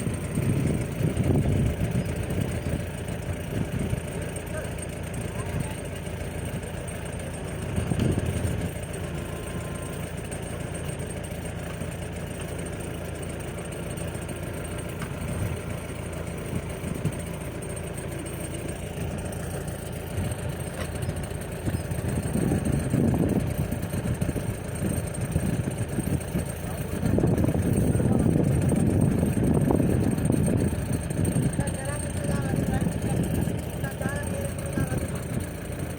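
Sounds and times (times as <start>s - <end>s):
heavy machine engine running: 0.0s - 35.9s.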